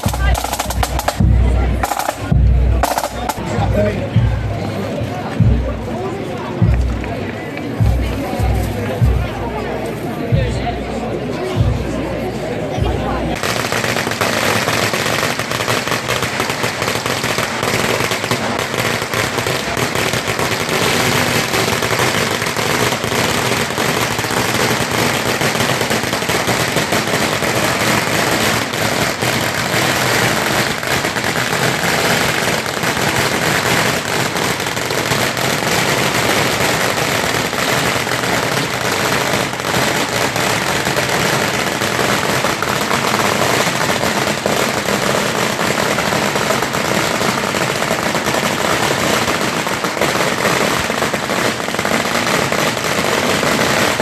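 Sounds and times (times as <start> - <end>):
firecrackers crackling: 0.0 - 54.0.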